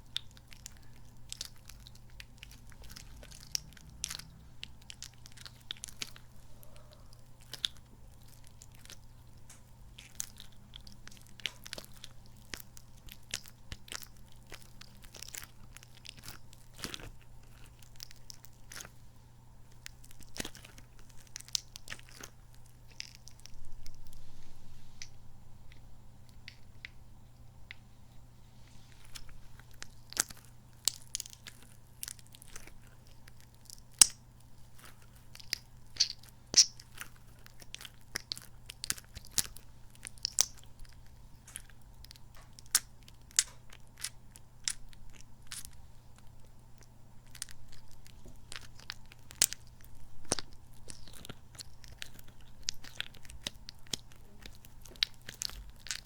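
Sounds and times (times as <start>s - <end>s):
squishy toy squelching: 28.7s - 56.0s.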